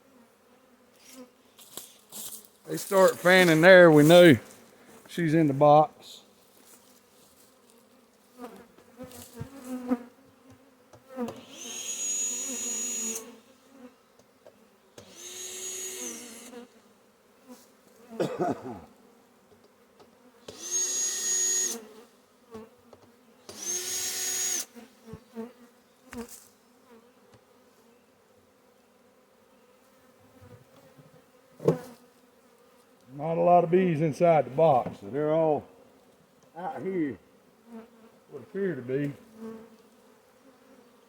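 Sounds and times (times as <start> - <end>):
bee swarm buzzing: 0.0 - 41.0
hissing bursts with whistle: 11.4 - 13.2, 20.6 - 21.8, 23.6 - 24.7.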